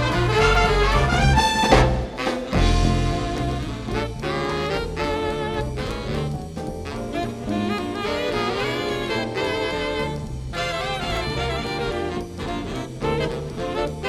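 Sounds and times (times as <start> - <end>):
bass line: 0.0 - 14.0
jazz band playing swing: 0.0 - 14.0
saxophone and brass: 0.0 - 14.0.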